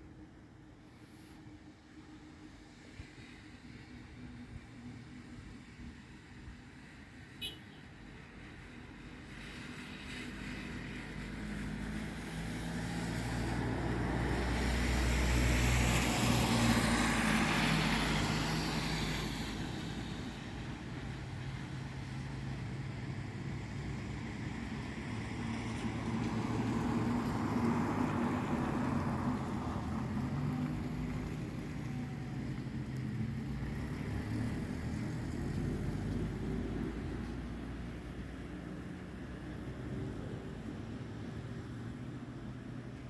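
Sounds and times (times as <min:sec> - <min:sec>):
vehicle engine passing by: 0:09.8 - 0:20.5, 0:23.7 - 0:42.0.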